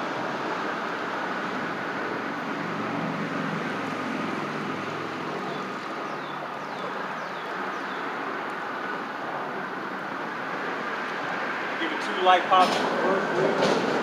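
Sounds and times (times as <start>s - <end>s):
road traffic noise: 0.0s - 14.0s
vehicle engine hum: 0.0s - 14.0s.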